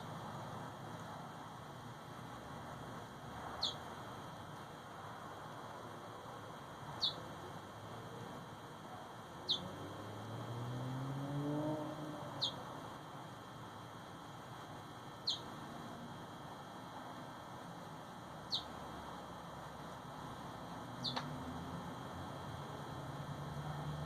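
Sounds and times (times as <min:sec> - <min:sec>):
bird chirping: 0:03.6 - 0:03.8, 0:07.0 - 0:07.2, 0:09.4 - 0:09.8, 0:12.3 - 0:12.6, 0:15.2 - 0:15.5, 0:18.5 - 0:18.8, 0:21.0 - 0:21.3.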